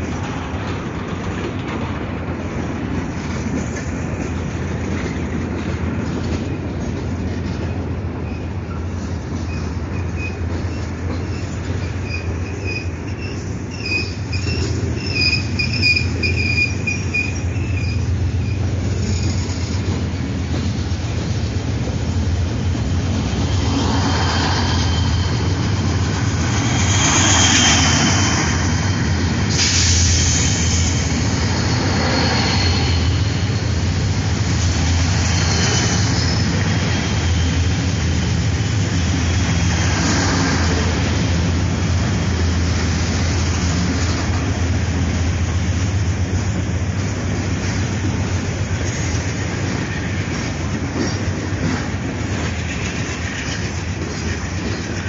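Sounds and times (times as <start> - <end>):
train wheels rumbling on rail: 0.0 - 55.0
high wheel squeals: 9.4 - 19.8, 23.5 - 39.9.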